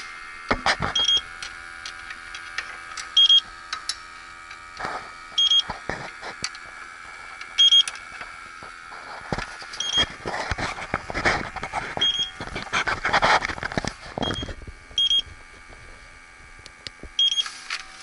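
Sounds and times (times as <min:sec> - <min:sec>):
steady high whine: 0:00.0 - 0:18.0
probe handling clicks and knocks: 0:00.5 - 0:06.8.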